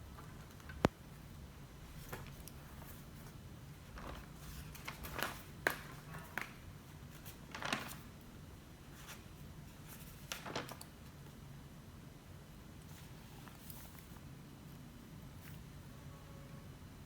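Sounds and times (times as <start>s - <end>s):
low steady hum: 0.0s - 17.0s
paper rustling and tapping: 2.0s - 8.1s, 9.9s - 10.9s.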